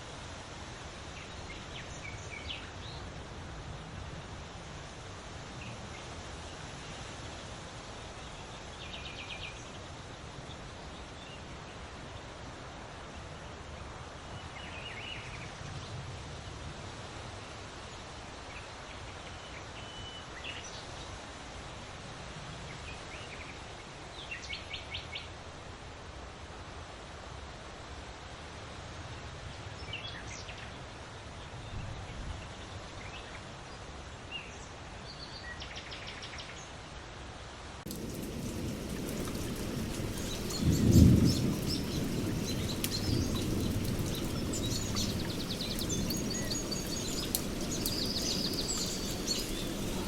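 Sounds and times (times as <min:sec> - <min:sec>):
outdoor hiss and rumble: 0:00.0 - 0:50.0
songbirds chirping: 0:37.9 - 0:50.0.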